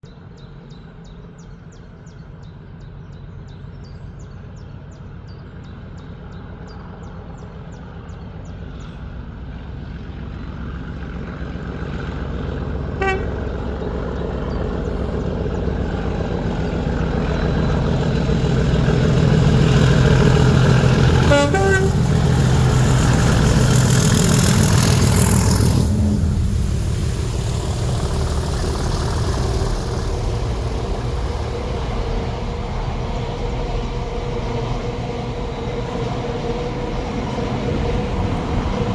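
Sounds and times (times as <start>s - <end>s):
diesel locomotive passing: 0.1s - 38.9s
train horn toots: 12.9s - 13.9s, 19.2s - 25.9s.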